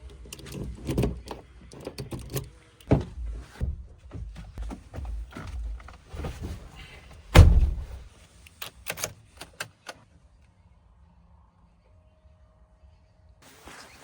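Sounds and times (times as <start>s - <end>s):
knocks and thuds: 2.9s - 8.1s
loud heavy thump: 7.3s - 8.1s.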